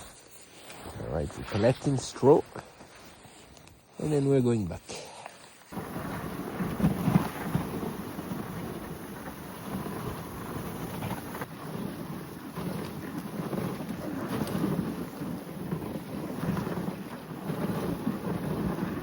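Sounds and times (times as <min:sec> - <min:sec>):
wind buffeting microphone: 0:05.7 - 0:19.0.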